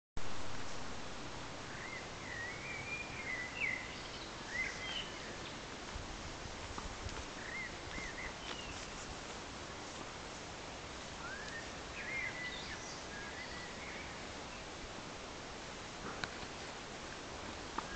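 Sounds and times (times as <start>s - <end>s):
outdoor background noise: 0.2s - 17.9s
small birds chirping: 1.6s - 9.5s, 10.2s - 14.8s, 17.6s - 17.9s.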